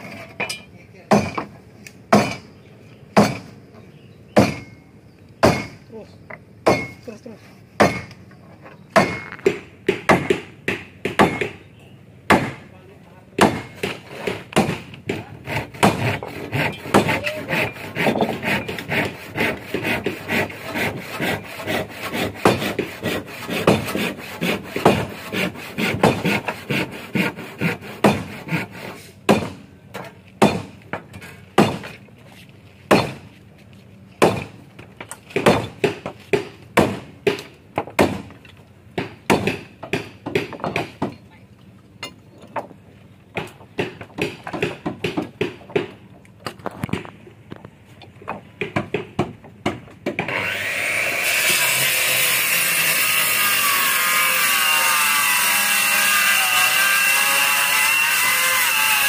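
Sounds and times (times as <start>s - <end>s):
rasping strokes on wood: 15.1s - 29.1s.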